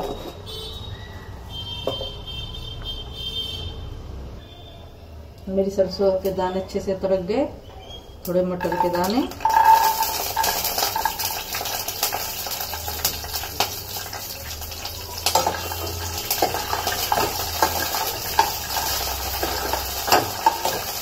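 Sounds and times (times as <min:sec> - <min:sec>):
steel spoon scraping a pan: 0:08.6 - 0:13.4, 0:15.3 - 0:21.0
peas sizzling in hot oil: 0:08.6 - 0:21.0.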